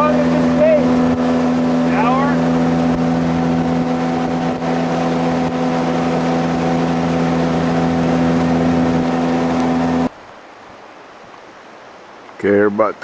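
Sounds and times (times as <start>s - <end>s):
boat engine droning: 0.0s - 10.1s
rushing water and wind: 0.0s - 13.0s.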